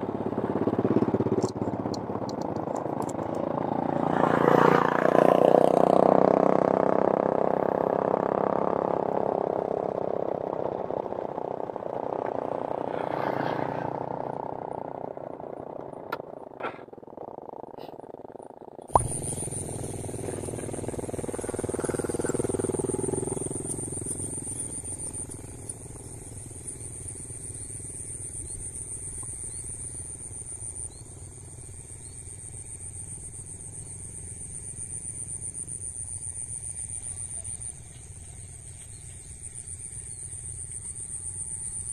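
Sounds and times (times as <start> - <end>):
vehicle engine running: 0.0 - 41.9
insects trilling: 17.1 - 41.9.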